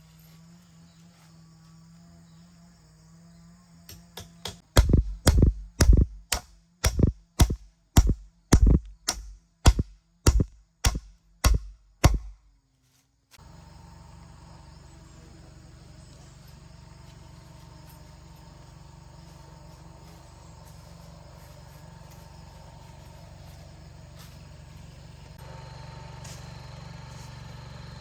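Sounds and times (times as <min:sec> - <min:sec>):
tool striking a solid surface: 0:03.9 - 0:12.4.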